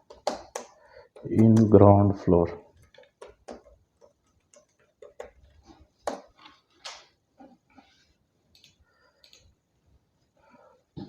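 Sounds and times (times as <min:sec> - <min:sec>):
computer keyboard and mouse clicks: 0:02.8 - 0:07.1, 0:08.5 - 0:09.5.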